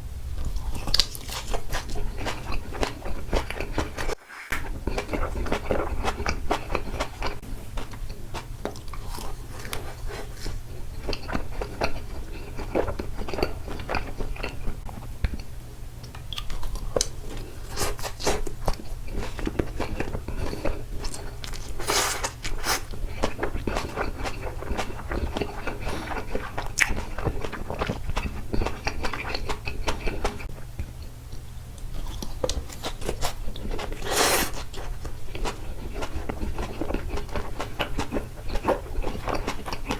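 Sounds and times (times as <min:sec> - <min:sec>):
close-miked chewing and biting: 0:00.4 - 0:15.5, 0:16.1 - 0:31.0, 0:31.8 - 0:39.9.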